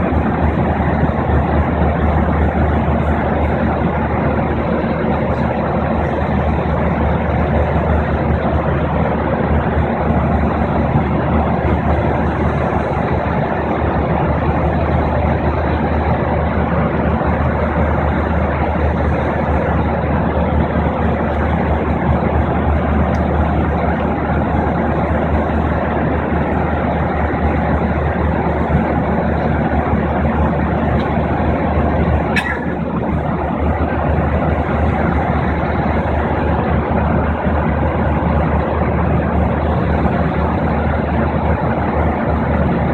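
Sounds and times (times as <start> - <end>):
jet engines rumbling in cabin: 0.0 - 42.9
rushing air: 28.3 - 37.4.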